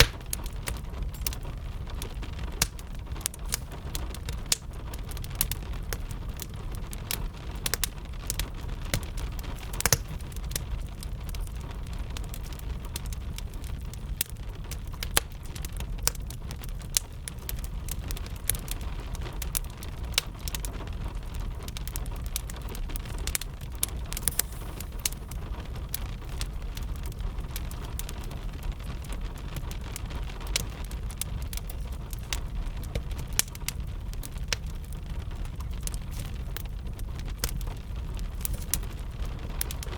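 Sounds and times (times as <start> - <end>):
steady rain: 0.0 - 39.9
wood fire crackling and popping: 0.0 - 39.9.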